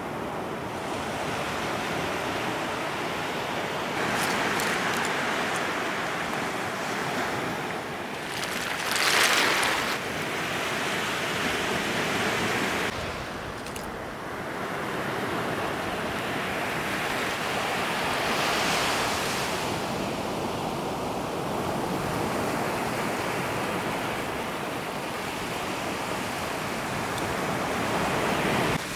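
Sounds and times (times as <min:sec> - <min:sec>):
waves breaking on beach: 0:00.0 - 0:28.9.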